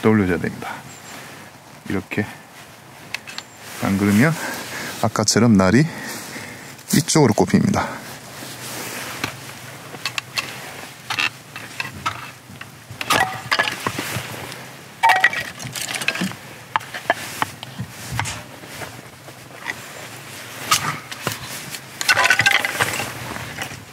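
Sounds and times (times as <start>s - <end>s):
blade knocking and cracking wood: 11.1s - 14.0s, 15.0s - 18.4s, 20.7s - 23.7s.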